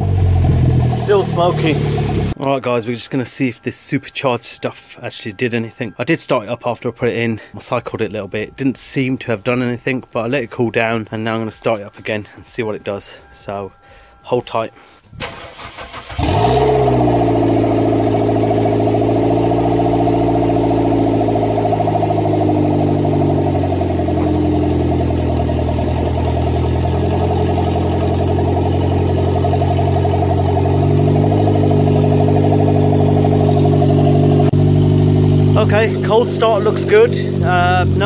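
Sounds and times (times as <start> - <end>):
car engine starting and idling: 0.0 - 2.4, 15.0 - 38.0.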